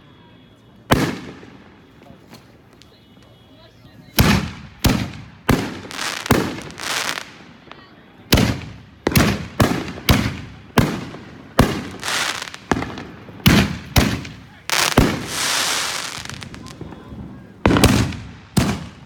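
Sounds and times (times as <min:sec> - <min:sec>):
fireworks bangs: 0:00.4 - 0:19.0
rushing firework tail: 0:00.9 - 0:02.6, 0:08.3 - 0:19.0.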